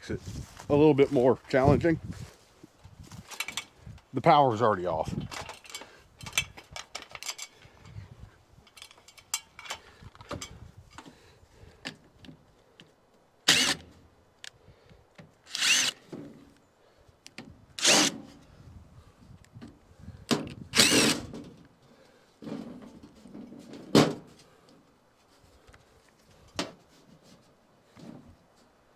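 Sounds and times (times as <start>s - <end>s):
handling clicks and knocks: 5.2s - 7.6s, 8.6s - 11.1s
cordless drill running: 13.5s - 13.8s, 15.5s - 16.0s, 17.8s - 18.2s, 20.8s - 21.3s.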